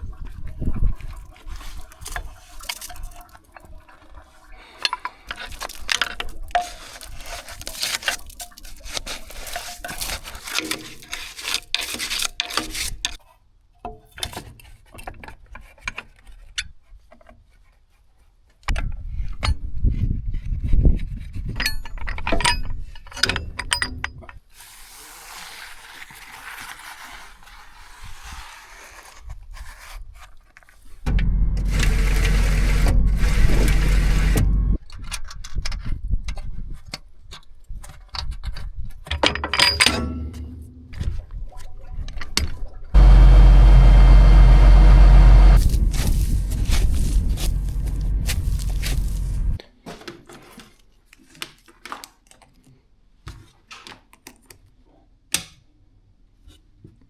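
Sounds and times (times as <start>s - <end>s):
objects clicking and scraping: 4.8s - 13.3s
loud steady noise: 31.1s - 34.8s, 43.0s - 49.6s
machine motor running: 31.1s - 34.8s, 43.0s - 49.6s
mechanical clicks and knocks: 31.1s - 34.8s.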